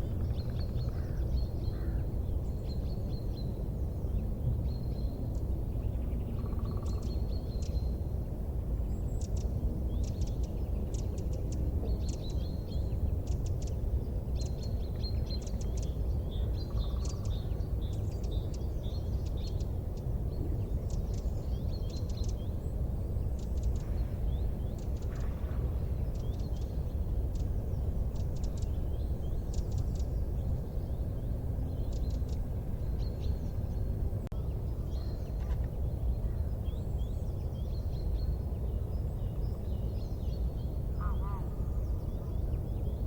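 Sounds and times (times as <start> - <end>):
steady low rumble: 0.0 - 43.0
small birds chirping: 8.8 - 43.0.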